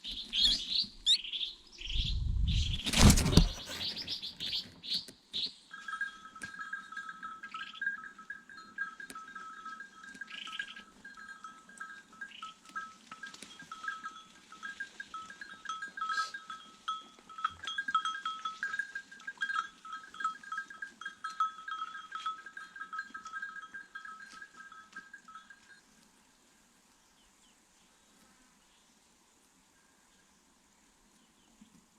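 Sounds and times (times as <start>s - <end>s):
small birds twittering: 0.0s - 5.6s.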